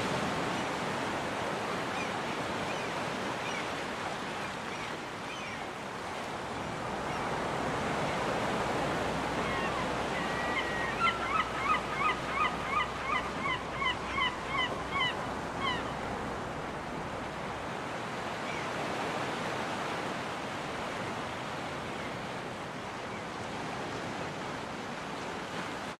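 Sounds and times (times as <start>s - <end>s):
surf washing onto beach: 0.0s - 26.0s
seagull calling: 9.1s - 16.0s.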